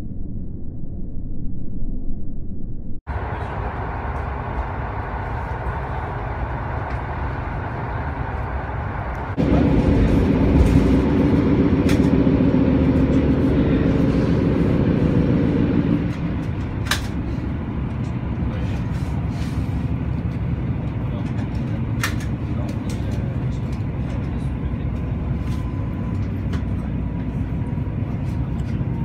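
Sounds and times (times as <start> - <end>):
steady hum: 0.0 - 22.3
train wheels rumbling on rails: 3.1 - 29.0.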